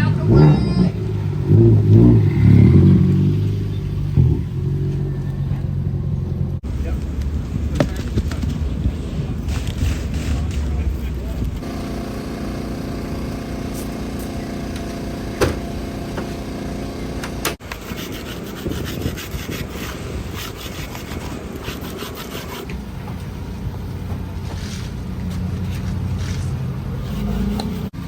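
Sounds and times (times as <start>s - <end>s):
car engine running: 0.0s - 8.8s, 10.7s - 17.6s, 22.7s - 28.0s
rasping scraping and rattling: 0.0s - 28.0s.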